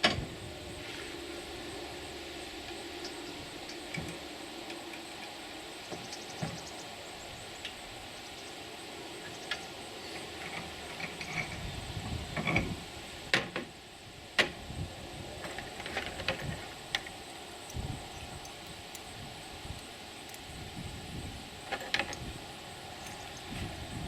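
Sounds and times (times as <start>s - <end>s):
steel parts clinking: 17.1s - 20.6s.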